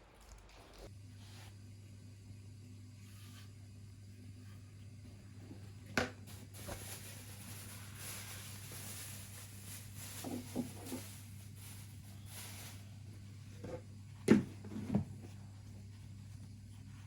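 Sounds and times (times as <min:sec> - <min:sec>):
steady low hum: 0:00.2 - 0:17.0
objects knocking and clunking: 0:10.2 - 0:11.0.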